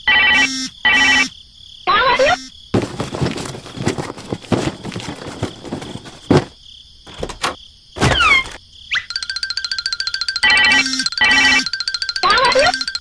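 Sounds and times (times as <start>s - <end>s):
knocks and clunks of small objects: 2.8s - 8.6s.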